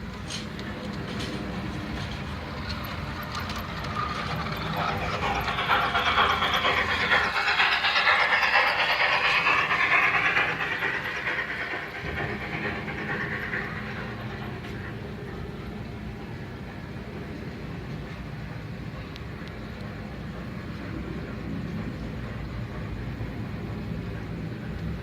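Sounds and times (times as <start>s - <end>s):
toy train running on track: 0.0s - 17.1s.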